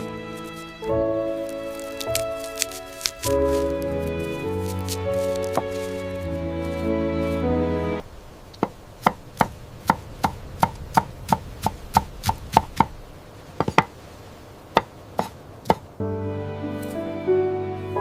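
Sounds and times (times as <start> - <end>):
soft music: 0.0 - 8.0, 16.0 - 18.0.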